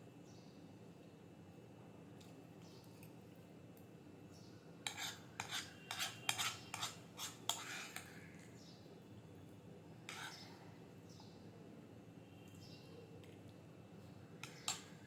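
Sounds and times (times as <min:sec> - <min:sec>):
cutlery scraping on a plate: 0:04.8 - 0:08.2, 0:10.1 - 0:10.5, 0:14.4 - 0:15.0.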